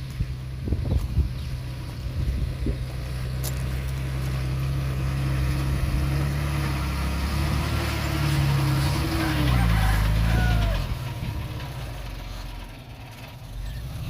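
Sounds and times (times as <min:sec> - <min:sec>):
heavy diesel engine running: 0:00.0 - 0:14.0.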